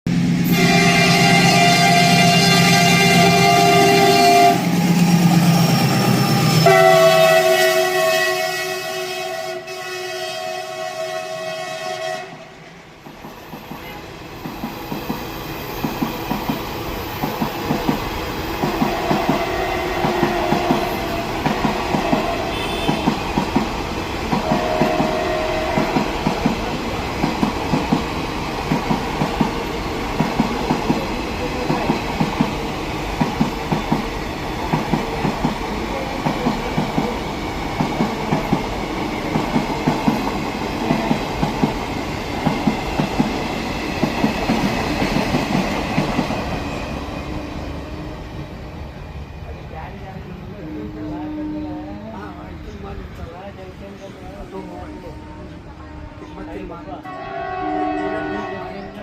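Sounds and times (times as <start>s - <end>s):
train wheels clicking over rail joints: 13.0s - 46.9s.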